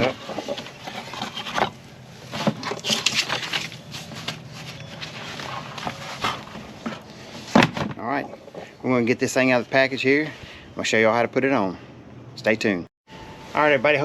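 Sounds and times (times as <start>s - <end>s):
packaging rustling and scraping: 0.0s - 7.6s.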